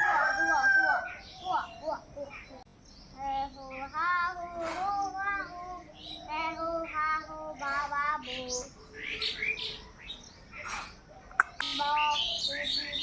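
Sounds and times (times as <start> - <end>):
child-like voice singing: 3.2 - 8.8, 11.4 - 13.0.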